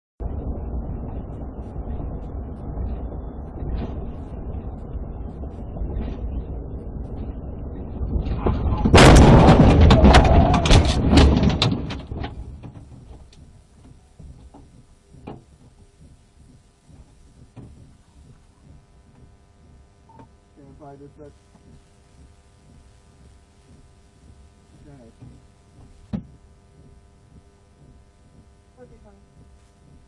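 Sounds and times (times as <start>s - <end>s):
car engine rumbling: 0.2s - 30.0s
crunching and clattering debris: 8.0s - 15.6s
car crash: 8.2s - 12.8s.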